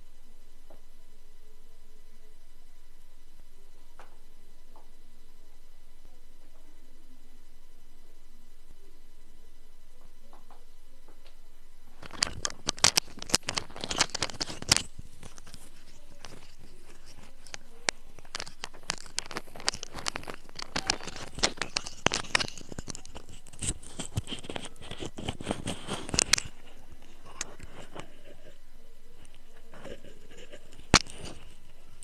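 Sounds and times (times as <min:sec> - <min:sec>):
microphone handling rustles and clicks: 0:12.0 - 0:28.6, 0:29.2 - 0:32.0.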